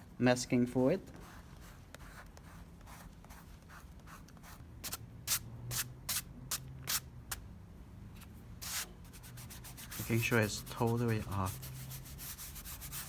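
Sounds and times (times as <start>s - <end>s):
scratchy rubbing on paper: 1.2s - 4.6s, 8.6s - 13.0s.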